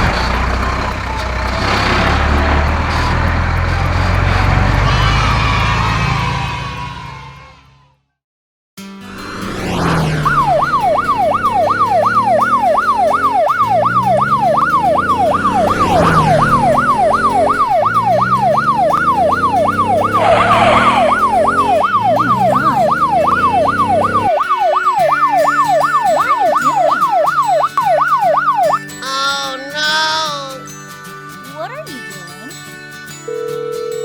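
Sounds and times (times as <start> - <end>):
cartoon siren yelping: 9.7 - 30.5.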